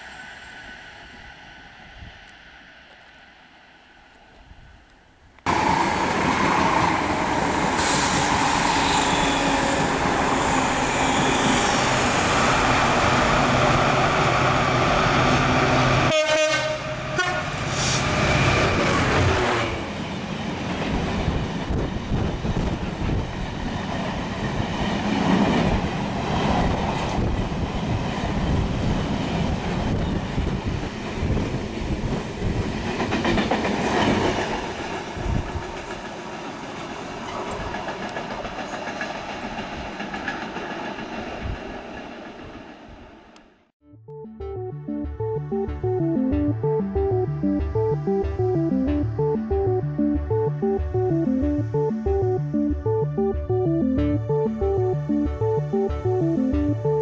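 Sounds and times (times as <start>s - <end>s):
locomotive rushing past: 5.5s - 43.0s.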